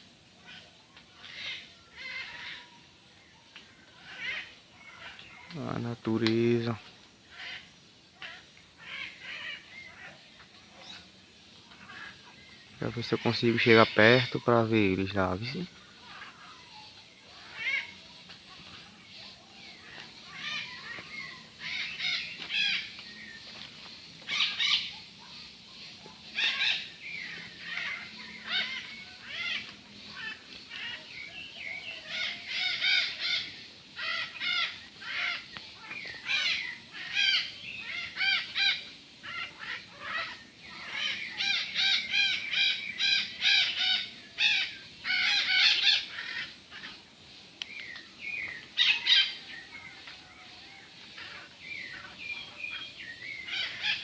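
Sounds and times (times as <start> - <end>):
parrots squawking and screeching: 0.4 - 2.8, 4.0 - 5.2, 7.3 - 10.2, 11.7 - 12.3, 15.4 - 18.0, 19.9 - 23.0, 26.2 - 31.1, 31.8 - 47.0, 48.8 - 50.1, 51.1 - 52.8, 53.4 - 54.0.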